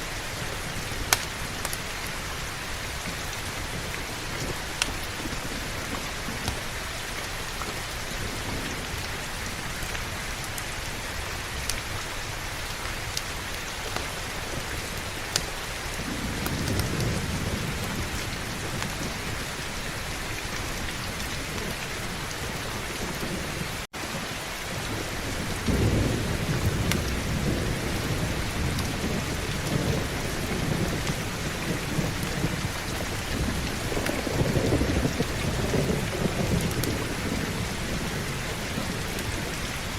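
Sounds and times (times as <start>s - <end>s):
heavy rain falling: 0.0s - 39.9s
thunder rumbling: 13.3s - 39.9s.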